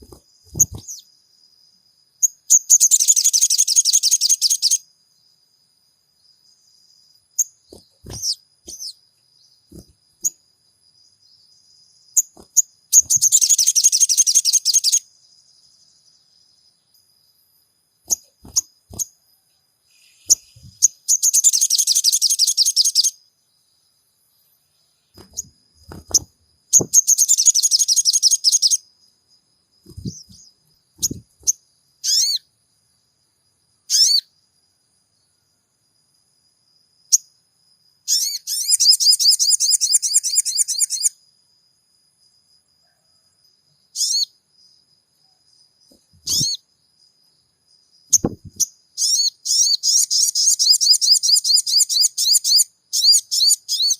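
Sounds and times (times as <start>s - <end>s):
bird rattling trills: 0.0s - 1.0s, 7.4s - 8.9s, 12.2s - 15.0s, 18.1s - 19.1s, 25.2s - 28.8s, 29.9s - 32.4s, 46.2s - 46.6s.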